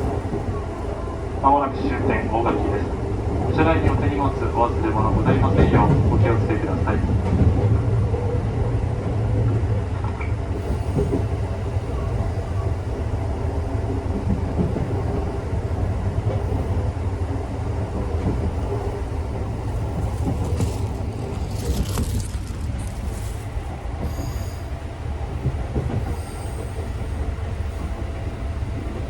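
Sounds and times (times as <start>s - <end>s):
train wheels rumbling on rails: 0.0s - 29.0s
train wheels squealing: 24.0s - 24.7s, 26.0s - 27.2s.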